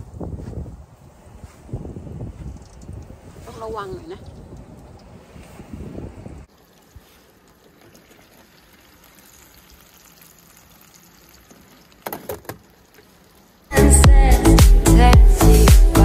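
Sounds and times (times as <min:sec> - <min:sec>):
faint liquid sound: 0:06.4 - 0:13.7.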